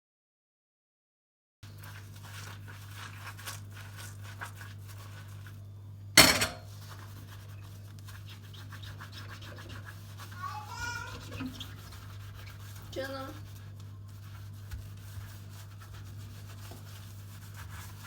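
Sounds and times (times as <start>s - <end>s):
light scratching and rustling: 6.2s - 18.0s.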